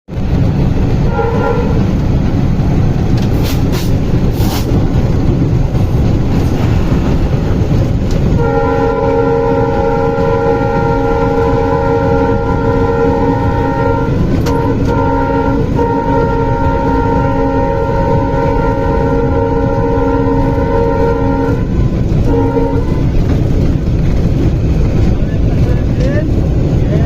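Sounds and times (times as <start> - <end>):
train rumbling: 0.1 - 27.0
locomotive horn blast: 0.9 - 2.1, 7.7 - 23.4.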